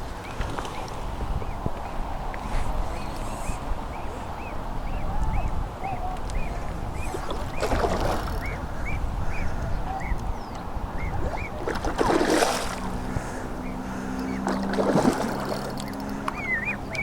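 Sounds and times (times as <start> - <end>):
wind rumble on microphone: 0.0 - 17.0
bird chirping: 3.9 - 11.6, 15.2 - 17.0.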